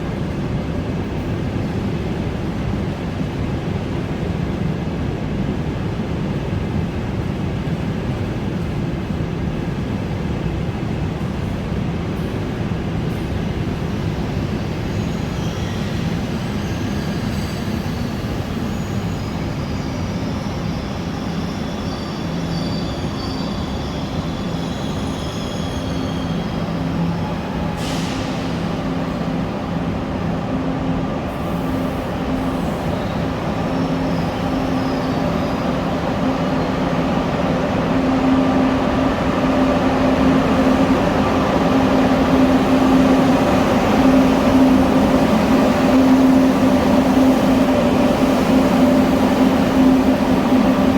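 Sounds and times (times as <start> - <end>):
electric train running hum: 0.0 - 50.9
faint wheel squeals: 14.8 - 28.8.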